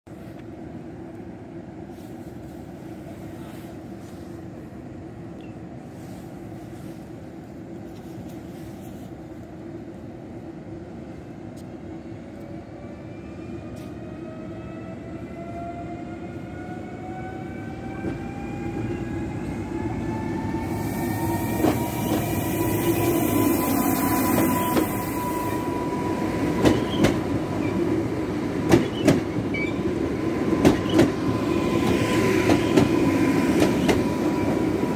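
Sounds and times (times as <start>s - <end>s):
train pulling away rumbling: 9.6s - 34.9s
traction motors whining: 20.5s - 26.1s.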